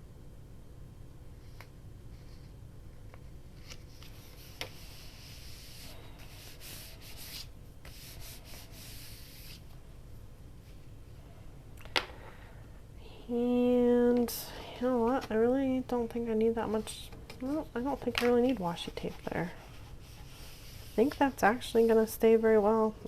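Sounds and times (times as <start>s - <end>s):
rubbing on paper: 3.7s - 9.6s, 18.8s - 22.1s.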